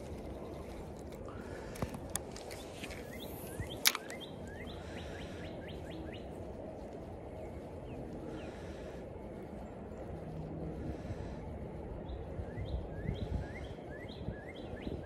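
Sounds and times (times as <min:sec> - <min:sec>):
outdoor background noise: 0:00.0 - 0:15.0
sharp clicks: 0:01.0 - 0:04.4
small bird chirping: 0:02.5 - 0:06.3.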